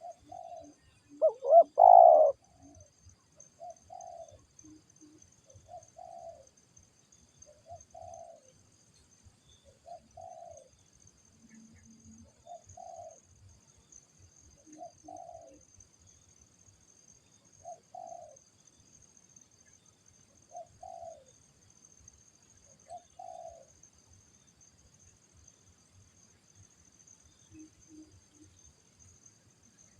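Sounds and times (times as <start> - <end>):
dove cooing: 0.0 - 2.8, 3.6 - 4.4, 5.6 - 6.5, 7.6 - 8.5, 9.8 - 10.7, 12.4 - 13.2, 14.7 - 15.6, 17.6 - 18.4, 20.5 - 21.3, 22.9 - 23.7
faint high-pitched drone: 0.0 - 6.4.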